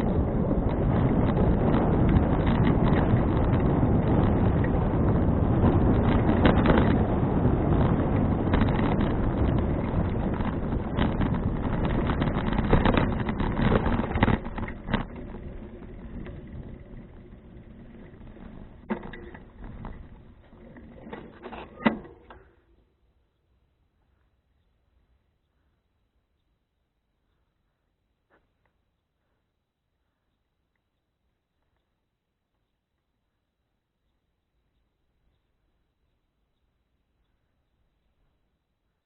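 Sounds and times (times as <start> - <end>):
wind rushing over microphone: 0.0 - 22.4
knocks and rattles: 0.6 - 22.6.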